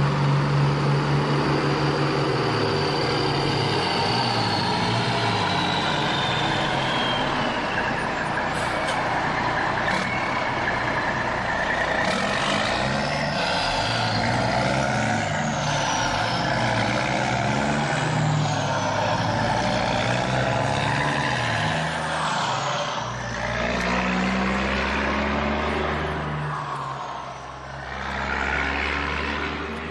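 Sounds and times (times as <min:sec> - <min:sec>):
truck engine: 0:00.0 - 0:29.9
high falling whistle tones: 0:01.4 - 0:08.8.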